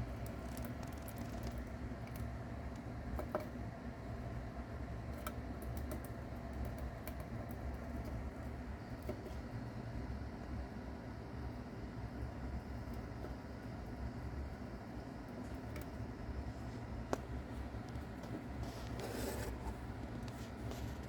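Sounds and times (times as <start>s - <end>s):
mouse chewing crunchy insect: 0.0s - 2.3s.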